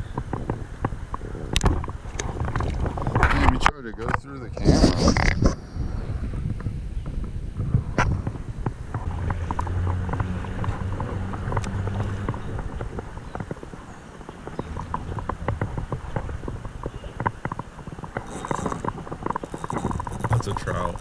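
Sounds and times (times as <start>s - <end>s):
wind rumble on microphone: 0.0s - 21.0s
fishing tackle clicking and rattling: 9.4s - 21.0s.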